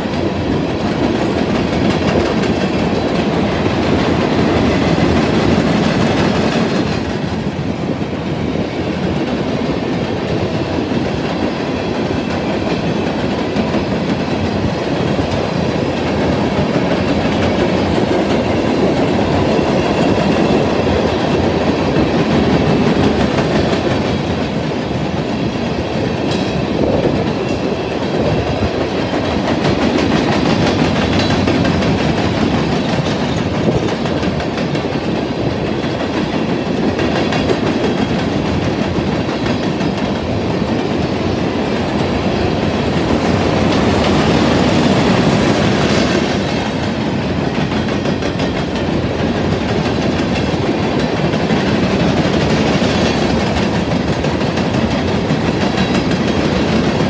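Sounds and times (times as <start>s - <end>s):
train wheels clicking: 0.0s - 57.0s
train wheels rumbling on rail: 0.0s - 57.0s.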